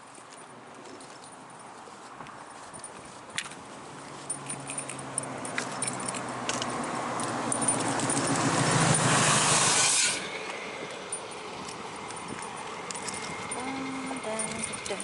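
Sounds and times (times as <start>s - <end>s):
light jingling and clicks: 0.0s - 9.1s, 10.4s - 15.0s
vehicle engine running: 4.0s - 15.0s.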